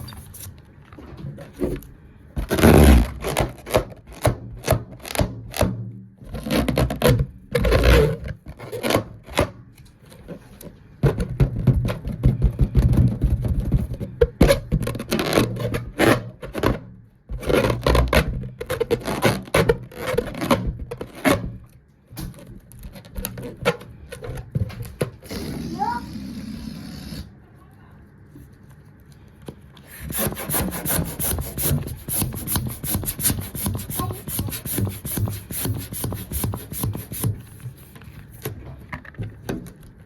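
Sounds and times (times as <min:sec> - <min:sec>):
scraping and rubbing strokes: 0:29.9 - 0:38.3.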